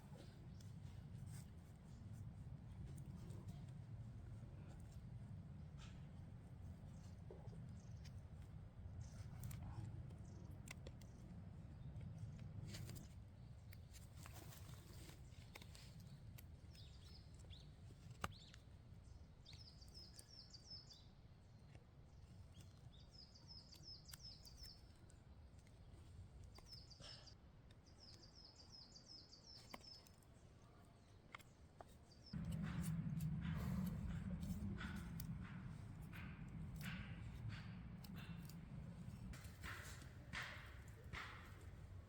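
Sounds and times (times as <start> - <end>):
loud low rumbling noise: 32.4 - 39.6
faint low rumble: 32.4 - 41.0.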